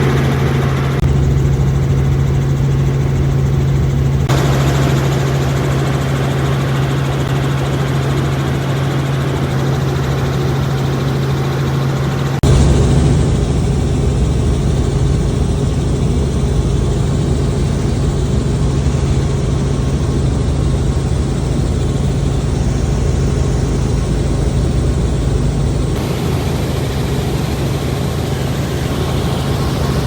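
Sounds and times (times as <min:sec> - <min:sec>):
helicopter drone: 0:00.0 - 0:30.0.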